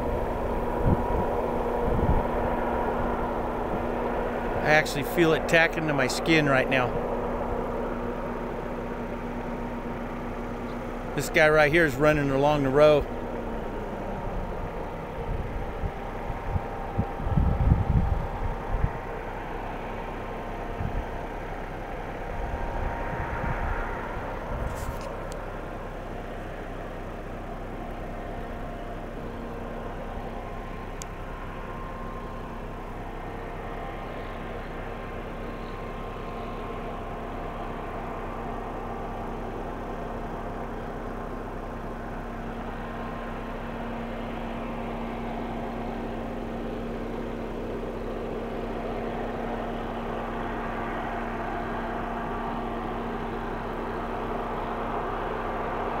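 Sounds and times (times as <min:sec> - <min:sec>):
wind buffeting microphone: 0:00.0 - 0:06.2, 0:13.1 - 0:19.4, 0:20.1 - 0:21.2, 0:22.2 - 0:25.3
engine humming: 0:00.0 - 0:56.0.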